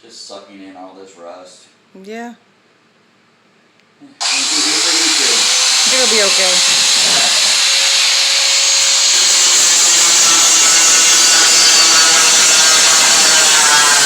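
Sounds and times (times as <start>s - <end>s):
angle grinder grinding metal: 4.2s - 14.0s.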